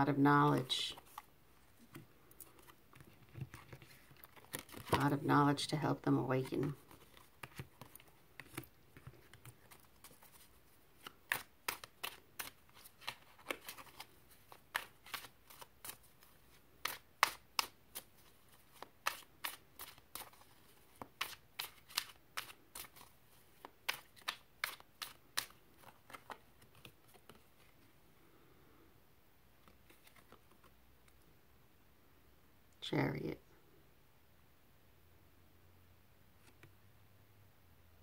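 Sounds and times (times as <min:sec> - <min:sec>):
cards being shuffled: 0:00.6 - 0:05.3, 0:06.4 - 0:27.8, 0:29.6 - 0:30.8.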